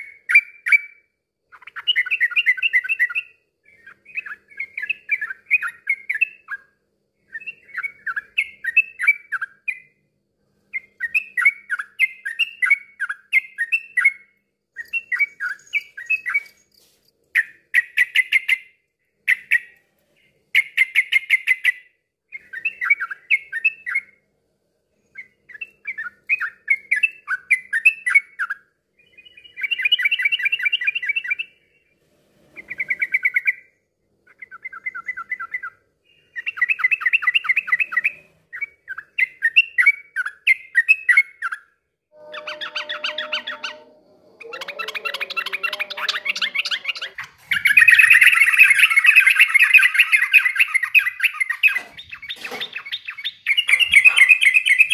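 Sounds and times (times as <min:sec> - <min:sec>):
bulbul singing warbling phrases: 0:42.2 - 0:51.8.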